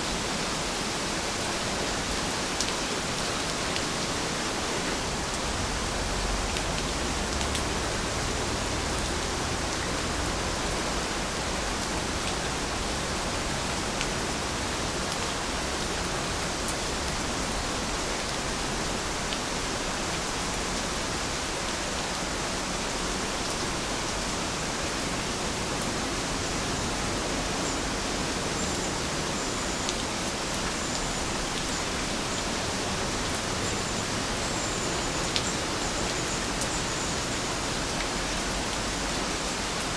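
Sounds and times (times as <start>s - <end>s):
steady heavy rain: 0.0s - 39.9s.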